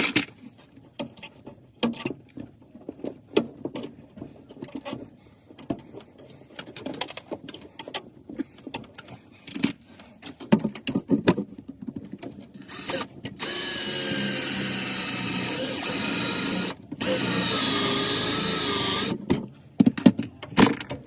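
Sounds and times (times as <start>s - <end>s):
parts and tools clicking: 12.0s - 20.1s
handheld power tool running: 12.6s - 19.2s.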